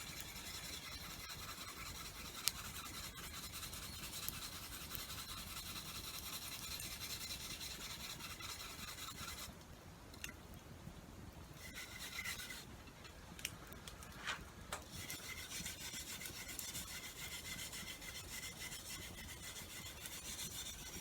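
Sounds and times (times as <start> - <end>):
tool rubbing and rasping: 0.0 - 9.5, 11.6 - 12.7, 14.8 - 21.0.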